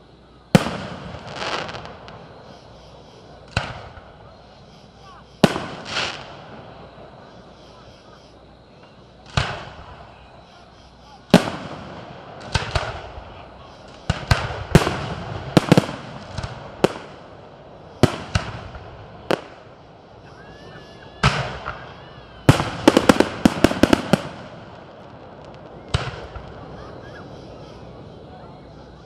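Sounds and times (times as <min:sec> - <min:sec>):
crackling firework reports: 0:00.0 - 0:29.0
firework shells bursting: 0:11.3 - 0:20.0, 0:21.2 - 0:26.7.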